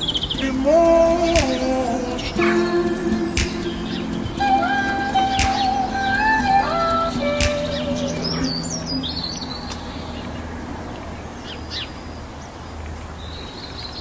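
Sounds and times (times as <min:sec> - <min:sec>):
background music: 0:00.0 - 0:10.0
birds chirping gliding calls: 0:00.0 - 0:14.0.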